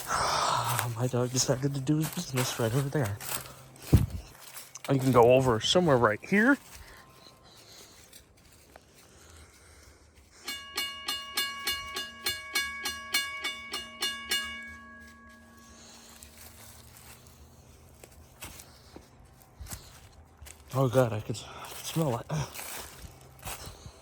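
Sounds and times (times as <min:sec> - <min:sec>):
railroad crossing bell ringing: 0:10.2 - 0:18.1.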